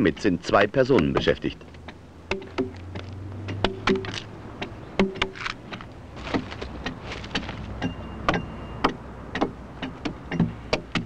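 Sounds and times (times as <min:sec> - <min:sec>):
axes chopping into a log: 0:02.3 - 0:11.0.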